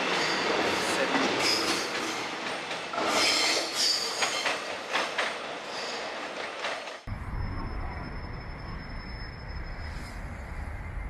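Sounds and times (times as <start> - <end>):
train wheels squealing: 0.0 - 1.9, 3.0 - 4.7, 5.6 - 6.2, 7.2 - 11.0
electric train running on rails: 0.0 - 11.0.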